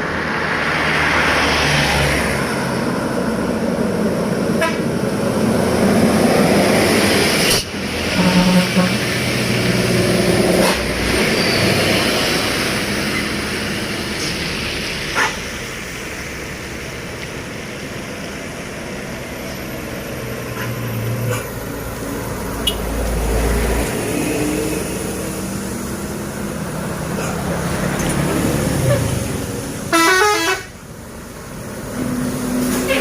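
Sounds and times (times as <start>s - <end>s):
heavy trucks passing: 0.0s - 33.0s
tyres on road: 0.0s - 33.0s
vehicle horn: 4.6s - 4.9s, 8.1s - 9.1s, 29.9s - 30.7s, 32.8s - 33.0s.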